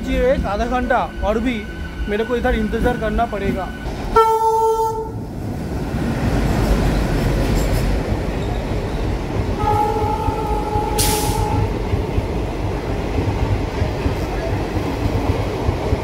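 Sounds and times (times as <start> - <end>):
train wheels rumbling on track: 0.0 - 16.0
locomotive horn: 4.2 - 5.2, 9.6 - 11.8
hiss burst: 11.0 - 11.5.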